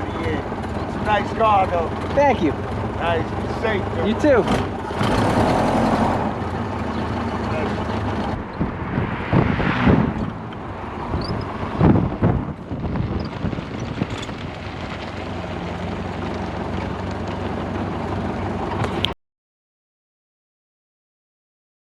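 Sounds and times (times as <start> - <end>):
car engine running: 0.0 - 19.1
wind buffeting microphone: 5.3 - 15.6.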